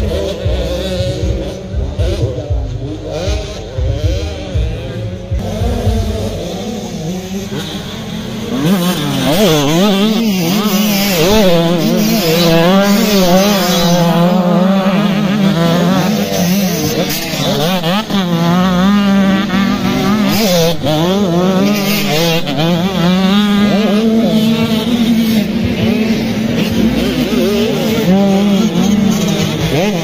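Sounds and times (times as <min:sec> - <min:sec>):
motocross bikes revving: 0:00.0 - 0:30.0.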